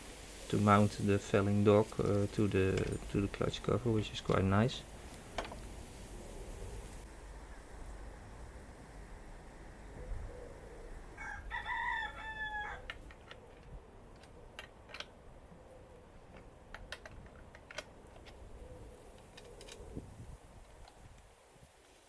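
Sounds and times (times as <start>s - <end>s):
rooster crowing: 11.1s - 13.0s.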